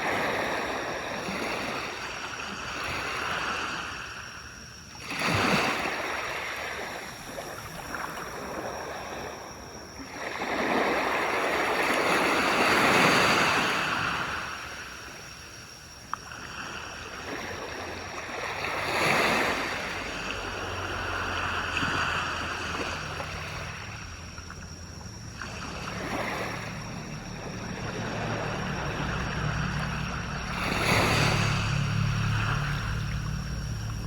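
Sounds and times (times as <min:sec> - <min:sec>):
waves breaking on shore: 0:00.0 - 0:34.0
low steady hum: 0:26.9 - 0:34.0.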